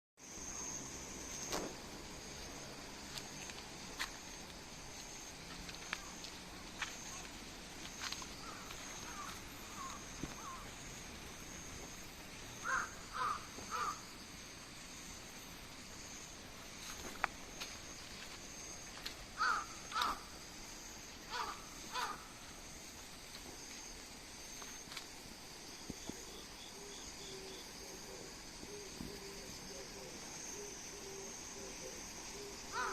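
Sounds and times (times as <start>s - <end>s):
insects trilling: 0.2s - 32.9s
crow cawing: 8.4s - 10.6s, 12.6s - 14.0s, 19.4s - 20.3s, 21.3s - 22.3s.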